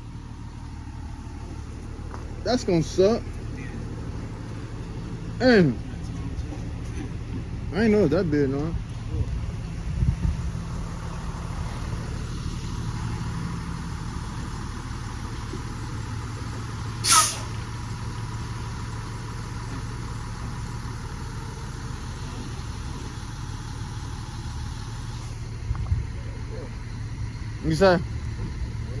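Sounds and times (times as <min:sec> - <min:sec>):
diesel truck engine idling: 0:00.0 - 0:29.0
sharp air hiss: 0:17.0 - 0:17.9.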